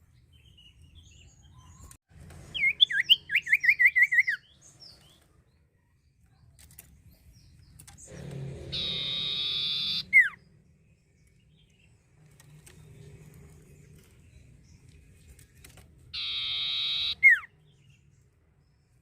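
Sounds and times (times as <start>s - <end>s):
bird whistling hooked notes: 7.8s - 10.4s, 16.2s - 17.5s
bird buzzy tone: 8.0s - 10.5s, 16.2s - 17.5s.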